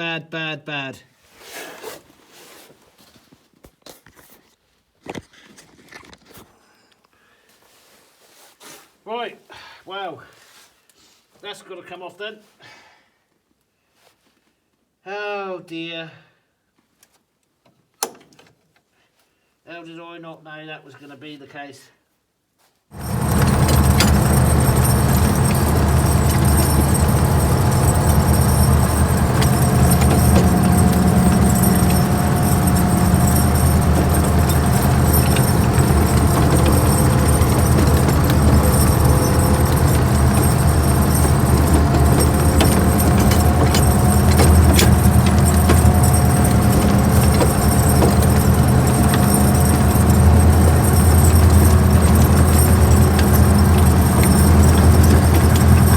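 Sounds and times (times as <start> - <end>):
engine idling: 23.0 - 55.9
light metallic clinks: 23.0 - 55.9.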